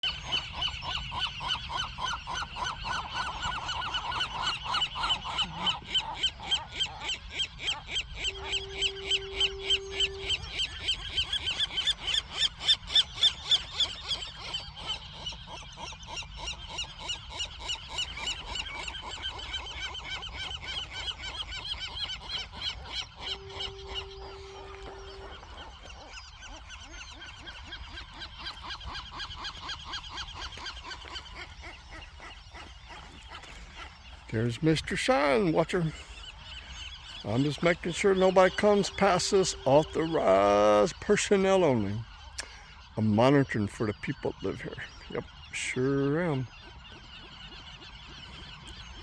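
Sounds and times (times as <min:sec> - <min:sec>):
gulls calling: 0:00.0 - 0:49.0
steady low tone: 0:23.2 - 0:25.9.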